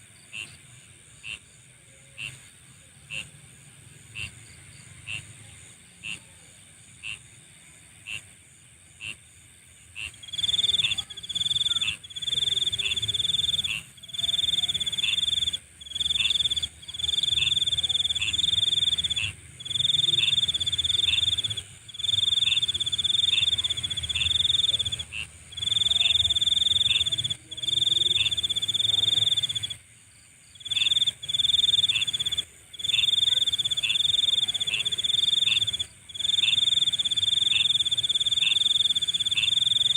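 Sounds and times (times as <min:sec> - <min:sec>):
insect chirps: 0:00.0 - 0:39.9
loud insect trills: 0:10.0 - 0:39.9.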